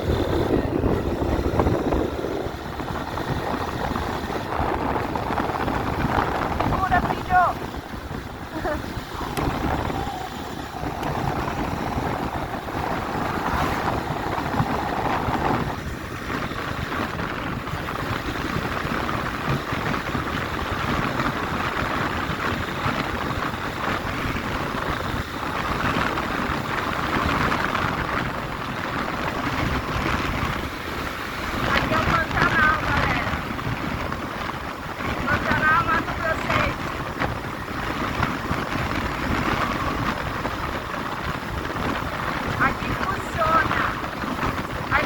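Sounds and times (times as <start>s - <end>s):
motorcycle engine running: 0.0s - 45.0s
wind over microphone: 0.0s - 45.0s.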